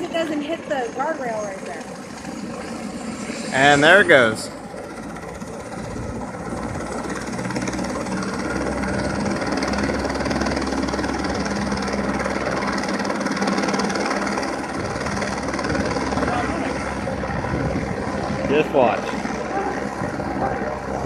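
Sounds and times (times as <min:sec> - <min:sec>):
helicopter turbine and rotor: 0:00.0 - 0:21.0.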